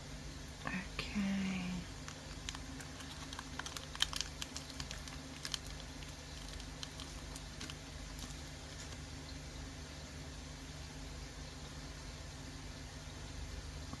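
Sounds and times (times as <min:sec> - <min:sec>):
low steady hum: 0:00.0 - 0:14.0
small pieces clicking and tapping: 0:02.0 - 0:09.0.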